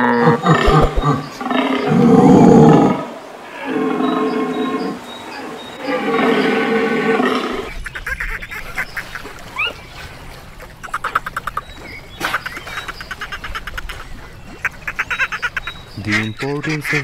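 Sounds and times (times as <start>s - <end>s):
ducks quacking: 0.0s - 2.0s, 4.6s - 17.0s
loud pitched animal call: 0.0s - 7.7s.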